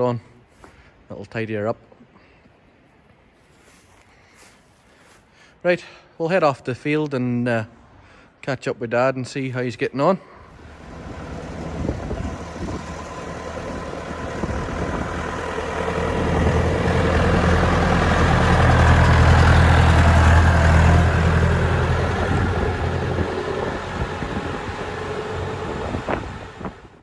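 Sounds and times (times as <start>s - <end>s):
vehicle engine humming: 10.3s - 27.0s.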